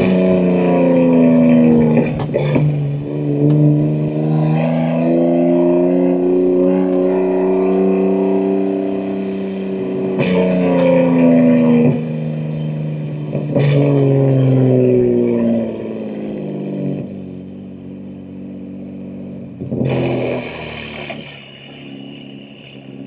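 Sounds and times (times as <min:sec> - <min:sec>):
car engine pulling: 0:00.0 - 0:23.0
exhaust cracks: 0:00.0 - 0:23.0.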